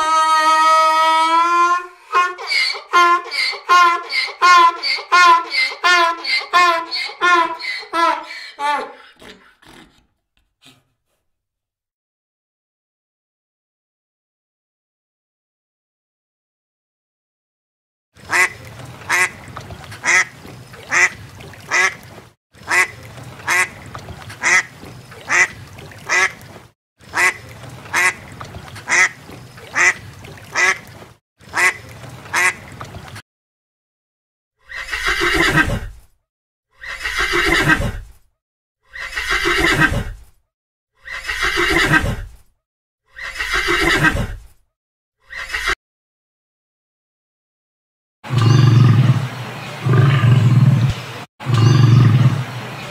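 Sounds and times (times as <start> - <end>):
duck quacking: 2.0 - 9.8, 18.3 - 22.0, 22.7 - 22.9, 23.5 - 23.8, 24.4 - 25.5, 26.1 - 26.4, 27.1 - 28.2, 28.9 - 30.0, 30.6 - 30.9, 31.5 - 32.6
horse neighing: 2.1 - 10.0, 34.6 - 35.9, 36.8 - 38.0, 38.9 - 40.2, 41.0 - 42.3, 43.1 - 44.4, 45.2 - 45.8.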